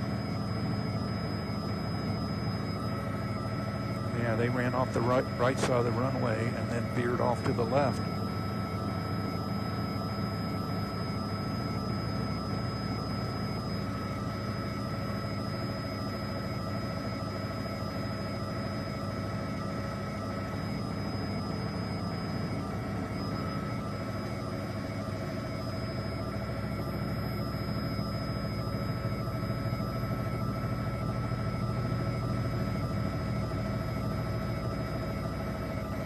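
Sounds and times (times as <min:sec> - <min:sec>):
helicopter engine and rotor drone: 0:00.0 - 0:36.0.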